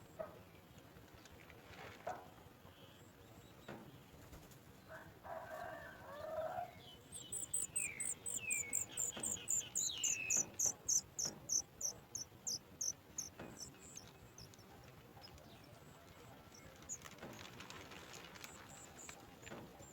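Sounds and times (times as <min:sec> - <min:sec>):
descending whistled bird calls: 0:07.1 - 0:14.7
very high fast chirping: 0:07.2 - 0:14.6.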